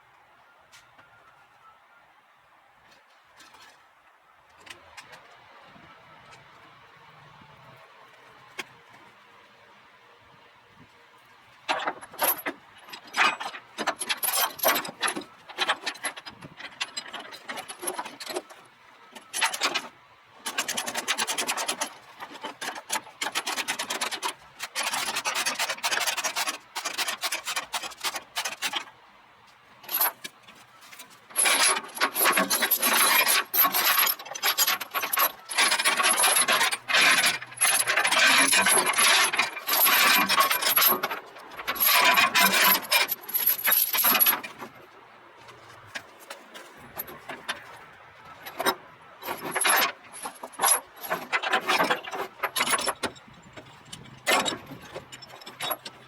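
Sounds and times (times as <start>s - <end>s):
steel chain rattling and scraping: 11.7s - 29.0s, 29.8s - 56.0s.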